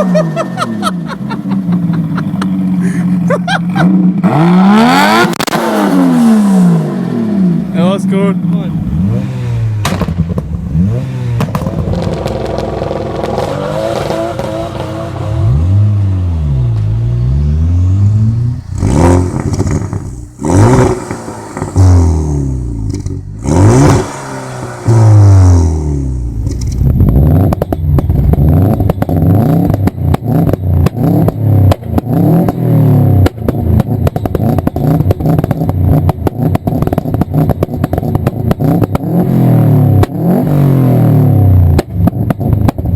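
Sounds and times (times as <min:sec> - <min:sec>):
exhaust popping and crackling: 0:00.0 - 0:04.4, 0:11.4 - 0:15.2, 0:17.9 - 0:42.9
car engine revving: 0:00.0 - 0:42.5
loud exhaust bangs: 0:17.8 - 0:30.0.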